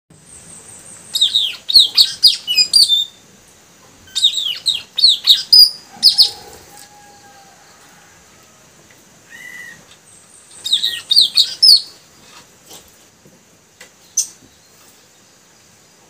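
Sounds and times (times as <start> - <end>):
young birds chirping: 0.3 - 3.3, 4.0 - 6.8, 9.3 - 12.4, 14.0 - 15.4.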